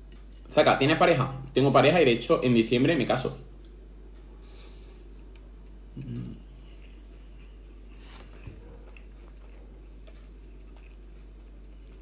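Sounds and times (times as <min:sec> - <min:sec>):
steady low hum: 0:00.0 - 0:12.0
faint chewing: 0:03.4 - 0:12.0
small mouth clicks: 0:05.4 - 0:07.7.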